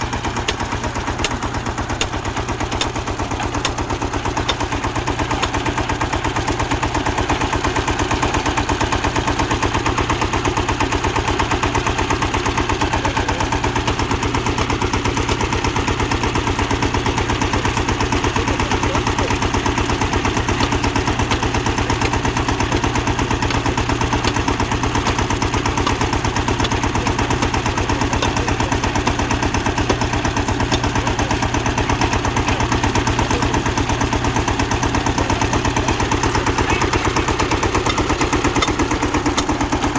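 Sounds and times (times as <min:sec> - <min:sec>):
diesel tractor engine pulsing: 0:00.0 - 0:39.9.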